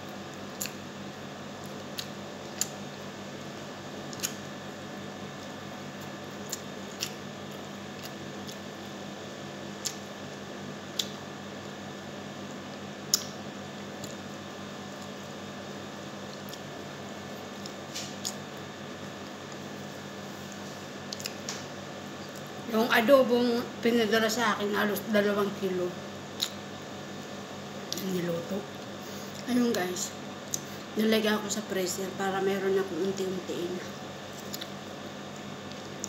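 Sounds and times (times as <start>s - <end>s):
steady low hum: 0.0s - 36.0s
mouth clicks and smacks: 4.1s - 4.4s, 9.8s - 10.1s, 10.9s - 11.2s, 13.1s - 13.4s, 21.1s - 21.6s, 26.3s - 26.6s, 34.4s - 34.8s.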